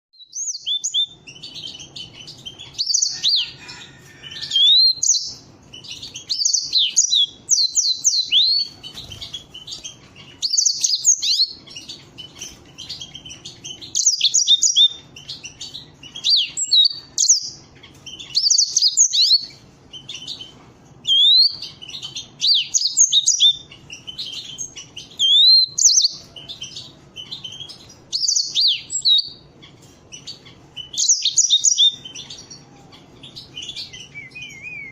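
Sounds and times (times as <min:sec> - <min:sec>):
canaries singing: 0:00.2 - 0:34.9.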